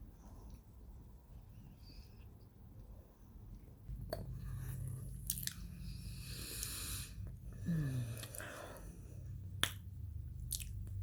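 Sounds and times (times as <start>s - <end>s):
person chewing crunchy food: 5.2s - 5.7s, 10.4s - 11.0s.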